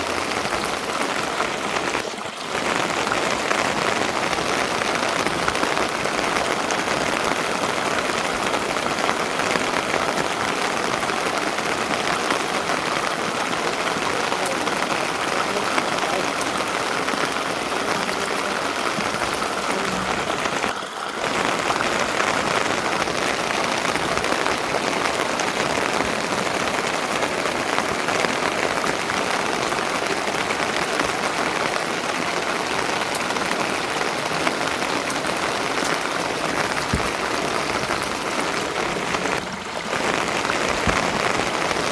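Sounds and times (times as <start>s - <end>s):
rain pattering on surfaces: 0.0s - 41.9s.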